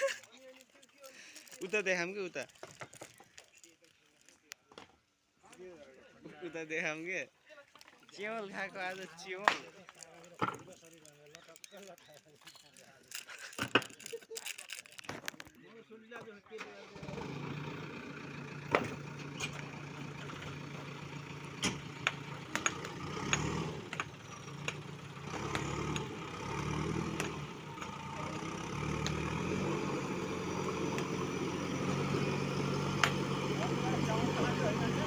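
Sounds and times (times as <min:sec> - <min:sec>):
stones dropped into steel bucket: 0:09.4 - 0:15.5
diesel engine idling: 0:16.8 - 0:35.0.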